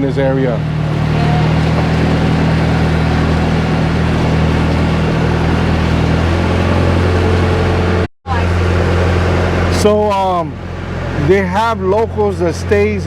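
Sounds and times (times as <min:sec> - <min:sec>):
boat engine running: 0:00.0 - 0:13.0
water noise: 0:00.0 - 0:13.0.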